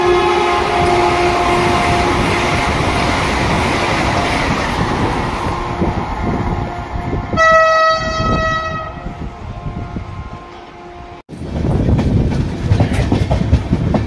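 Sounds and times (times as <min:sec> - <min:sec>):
train horn: 0:00.0 - 0:02.6, 0:06.6 - 0:11.2
train passing rumble: 0:00.0 - 0:14.0.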